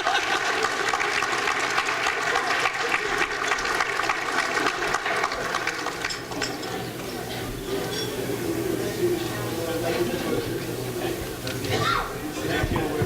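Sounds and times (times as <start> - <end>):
crowd applauding: 0.0 - 6.7.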